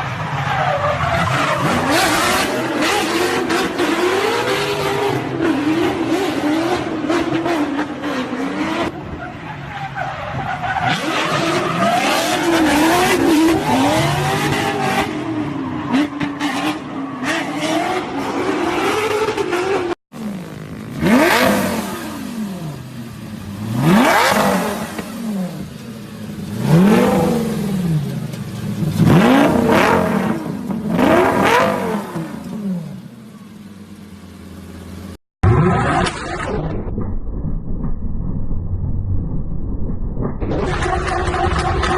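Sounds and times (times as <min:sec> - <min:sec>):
car engine revving: 0:01.1 - 0:09.0, 0:10.7 - 0:36.1.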